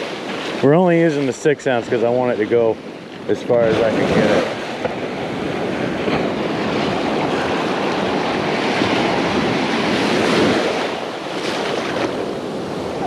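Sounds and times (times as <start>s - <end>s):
ocean surf breaking: 0.0s - 13.0s
wind on microphone: 0.0s - 13.0s.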